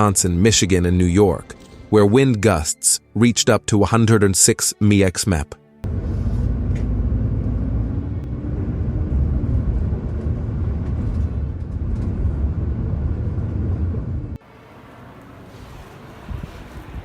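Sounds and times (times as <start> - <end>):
vehicle engine running: 5.8 - 14.6.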